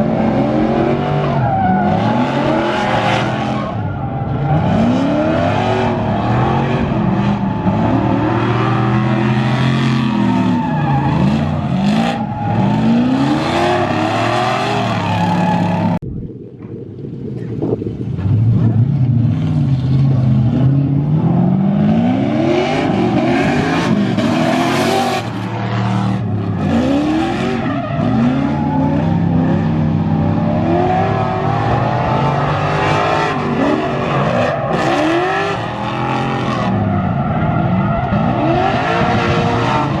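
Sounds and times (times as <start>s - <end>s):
car engines revving hard: 0.0s - 16.0s, 18.2s - 40.0s
tyre squeal and skidding: 1.2s - 16.0s, 24.8s - 29.4s.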